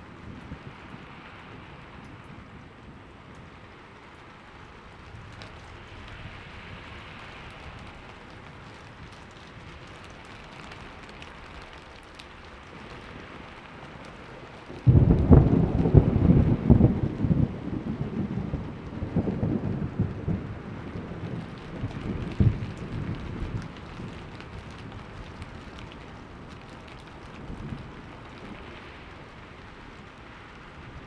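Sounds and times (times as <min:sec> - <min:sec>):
rain hissing: 0:03.6 - 0:31.0
loud thunder clap: 0:14.8 - 0:23.6.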